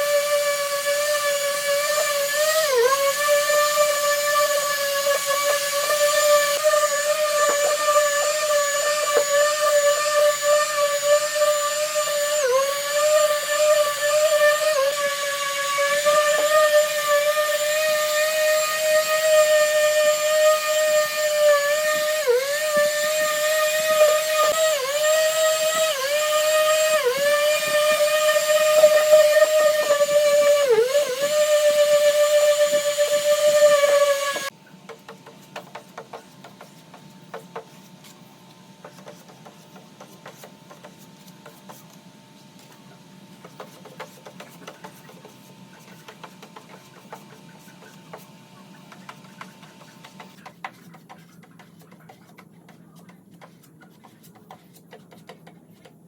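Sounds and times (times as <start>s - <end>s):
electric power tool whining: 0.0s - 34.5s.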